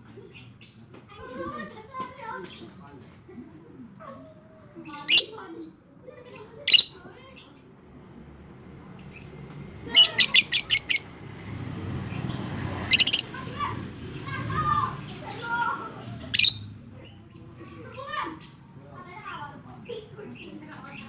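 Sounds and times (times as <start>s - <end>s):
lovebird chattering call: 9.9s - 11.1s, 12.8s - 13.4s, 16.2s - 16.7s.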